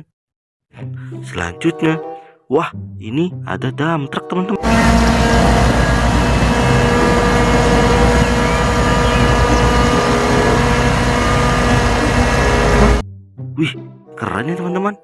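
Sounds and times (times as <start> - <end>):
truck engine rumbling: 4.6 - 13.0.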